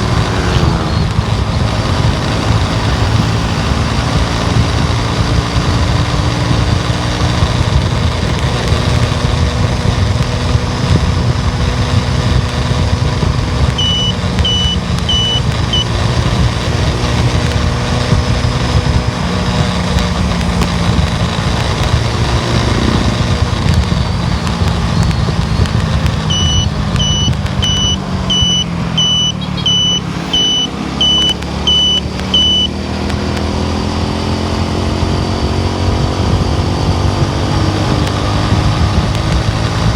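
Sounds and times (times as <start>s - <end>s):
car engine and road noise: 0.0s - 39.9s
high electronic beep: 13.7s - 16.0s, 26.2s - 32.8s.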